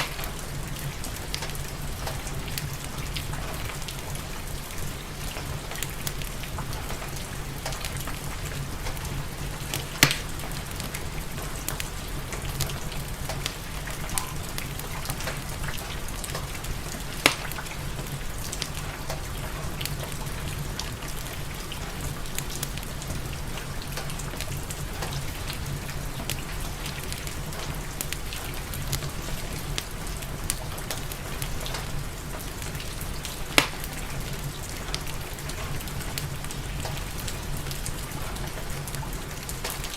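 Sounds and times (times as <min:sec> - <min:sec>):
steady rain hiss: 0:00.0 - 0:39.9
wood fire crackling: 0:00.0 - 0:39.9
loud sharp pops: 0:10.0 - 0:10.3, 0:17.2 - 0:17.6, 0:33.6 - 0:33.9.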